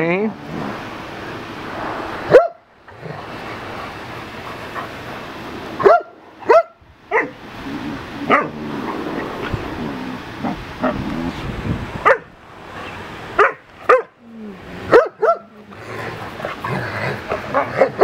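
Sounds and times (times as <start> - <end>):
dog barking: 2.3 - 2.6, 5.8 - 7.4, 8.3 - 8.6, 12.0 - 12.3, 13.4 - 14.2, 14.9 - 15.5
dog play growling: 2.8 - 5.3, 7.4 - 11.6, 15.5 - 18.0.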